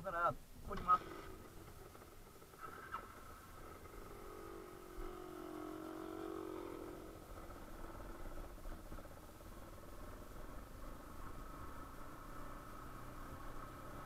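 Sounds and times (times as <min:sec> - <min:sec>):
motorcycle engine running at low revs: 0:00.7 - 0:14.0.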